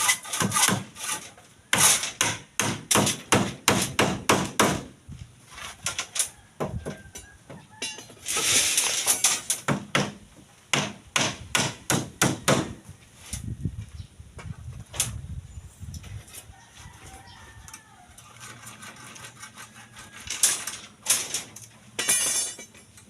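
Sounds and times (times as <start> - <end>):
scraping: 18.1 - 22.9.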